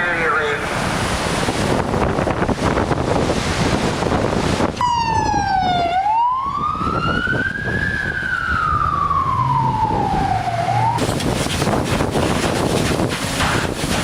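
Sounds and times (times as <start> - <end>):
steady rushing noise: 0.0 - 5.6, 6.5 - 14.0
emergency siren wailing: 4.8 - 11.0.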